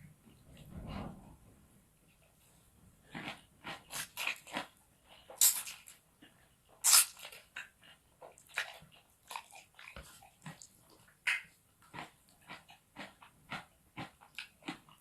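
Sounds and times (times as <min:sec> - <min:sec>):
wet chewing and smacking: 0:03.0 - 0:15.0.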